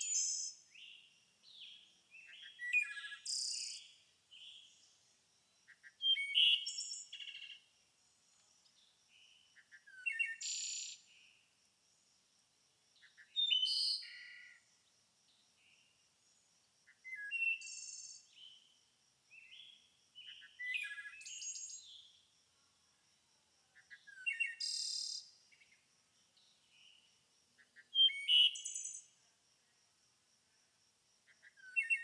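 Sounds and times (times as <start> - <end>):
songbird singing trills: 0.0 - 4.9, 5.7 - 7.6, 8.8 - 11.1, 13.1 - 14.4, 23.8 - 25.8, 26.4 - 29.1, 31.4 - 32.0.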